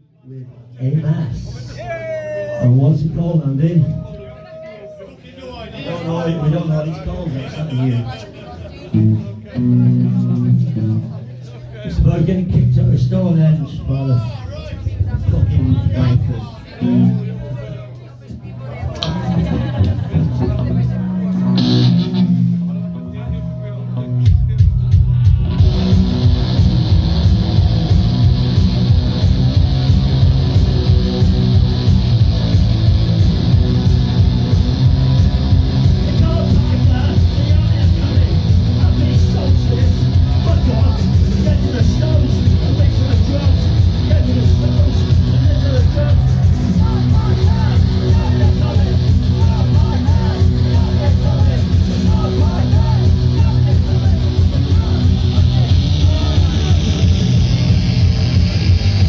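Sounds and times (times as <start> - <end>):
live punk band playing: 16.8 - 17.3, 19.0 - 59.0.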